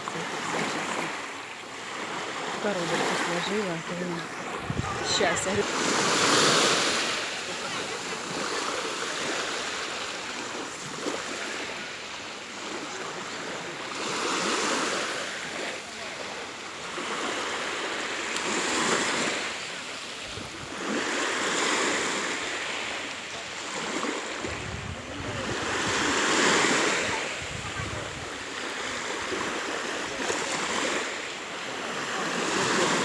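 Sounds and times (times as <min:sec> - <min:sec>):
small waves washing onto shore: 0:00.0 - 0:33.0.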